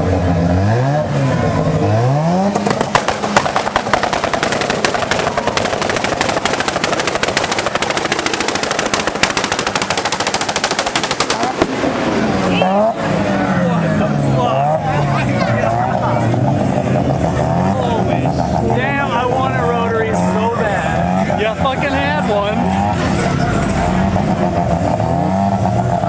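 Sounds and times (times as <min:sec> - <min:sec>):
exhaust pops and bangs: 0:00.0 - 0:14.4
race car engine revving: 0:00.0 - 0:26.0.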